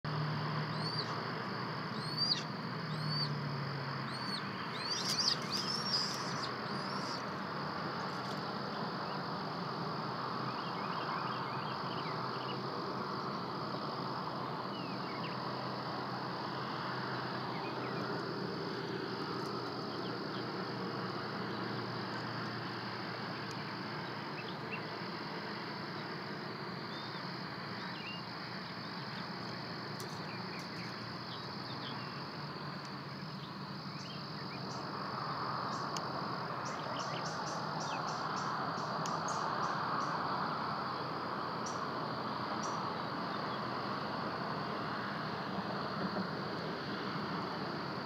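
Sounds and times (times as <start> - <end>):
outdoor background hiss: 0.1 - 48.0
bird chirping: 0.7 - 1.2, 1.9 - 3.4, 4.1 - 7.4, 36.6 - 40.2.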